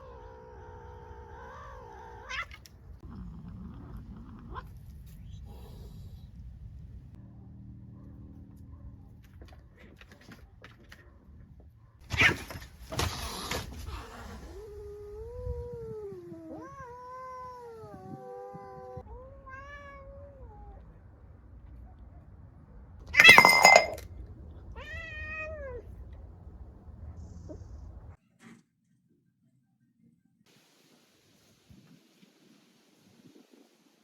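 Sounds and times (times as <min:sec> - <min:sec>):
cat yowling: 0:00.0 - 0:02.7, 0:14.6 - 0:20.8, 0:24.8 - 0:25.9
cat meow-like cry: 0:01.3 - 0:02.6, 0:16.3 - 0:20.8, 0:24.8 - 0:25.8.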